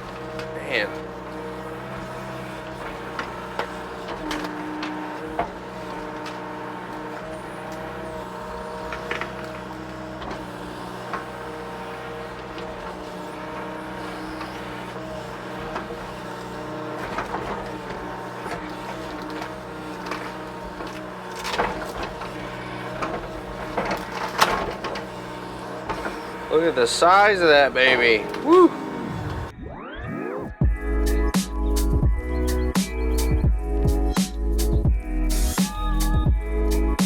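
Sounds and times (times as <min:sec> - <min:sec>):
knocks and clunks of digging: 0:00.0 - 0:29.5
excavator diesel engine running: 0:00.0 - 0:37.0.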